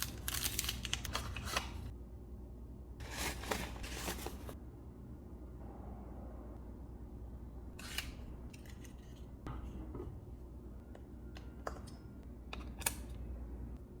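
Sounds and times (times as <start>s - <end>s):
packaging clicks and rustles: 0.0s - 1.9s.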